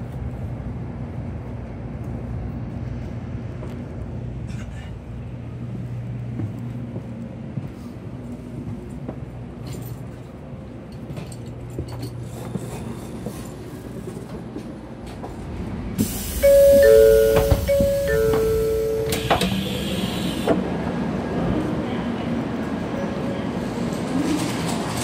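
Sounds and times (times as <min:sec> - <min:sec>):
train interior hum and rumble: 0:00.0 - 0:25.0
two-tone electronic chime: 0:16.4 - 0:19.2.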